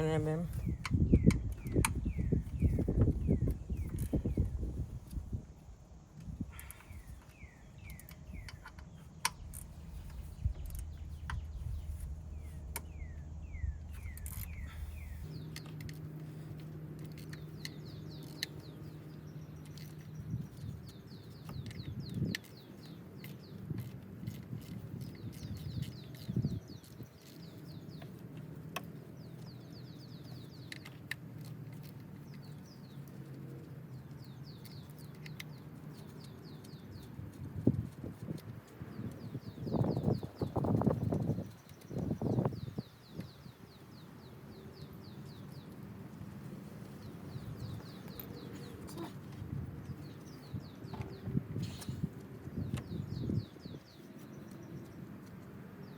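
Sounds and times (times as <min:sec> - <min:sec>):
low steady hum: 0:00.0 - 0:36.6
birds chirping in falling trills: 0:06.3 - 0:23.6.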